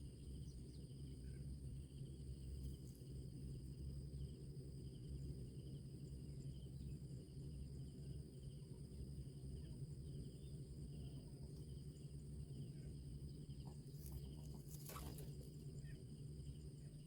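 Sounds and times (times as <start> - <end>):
insects trilling: 0.0 - 17.0
soft insect chirp: 0.0 - 17.0
brief rustle: 14.0 - 15.4.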